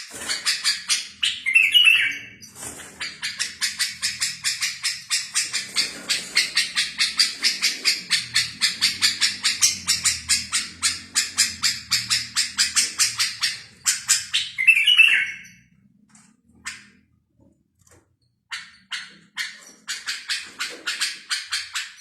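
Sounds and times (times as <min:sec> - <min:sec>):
songbird chirping: 0:00.3 - 0:17.0.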